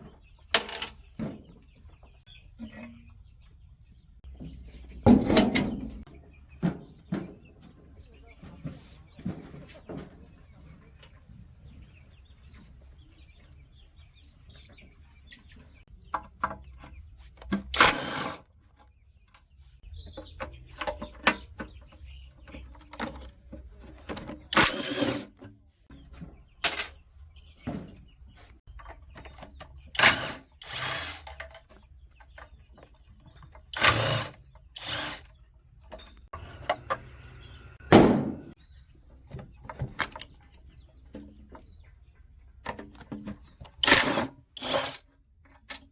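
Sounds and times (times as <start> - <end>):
grinding and scraping on metal: 16.1 - 18.6, 19.9 - 27.0, 29.0 - 31.9, 33.4 - 35.4, 36.0 - 38.6, 43.2 - 45.9.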